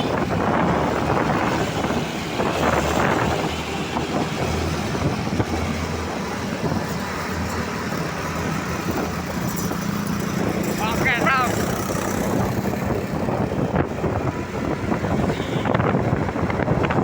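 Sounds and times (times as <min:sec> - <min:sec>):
traffic rushing: 0:00.0 - 0:17.0
truck engine hum: 0:00.0 - 0:17.0.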